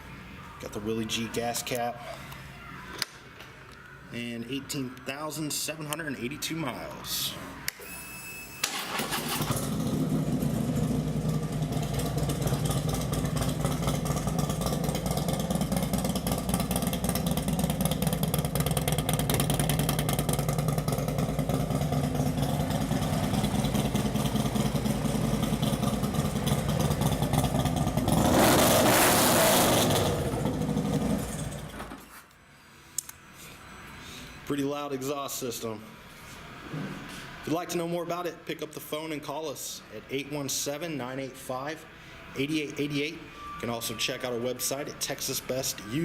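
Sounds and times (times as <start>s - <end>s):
motorcycle engine starting and idling: 8.6s - 32.1s
motorcycle engine revving: 8.8s - 31.9s.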